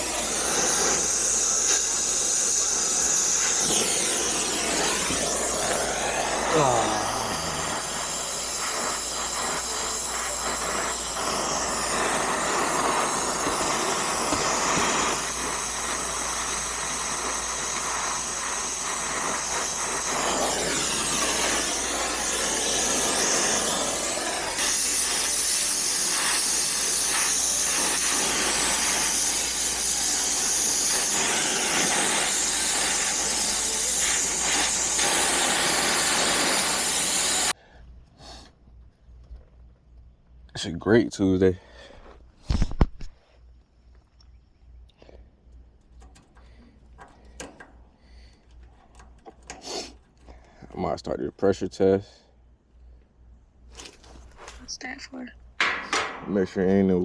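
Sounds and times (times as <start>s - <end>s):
brazing torch hissing: 0.0s - 37.6s, 49.4s - 50.2s.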